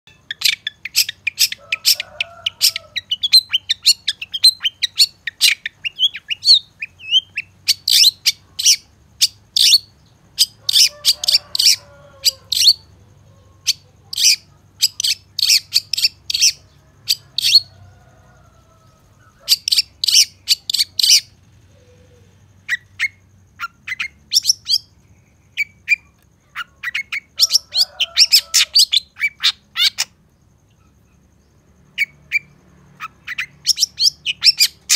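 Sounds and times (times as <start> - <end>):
faint low hum: 0.1 - 34.9.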